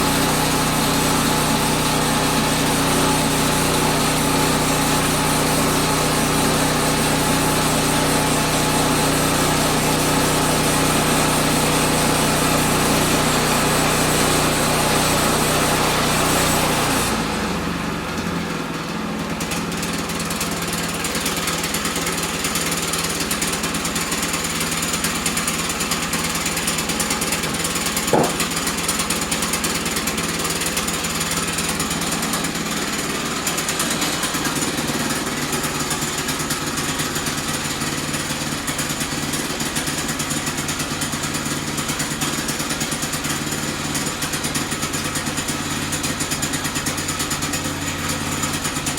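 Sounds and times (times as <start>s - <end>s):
small engine running: 0.0s - 48.9s.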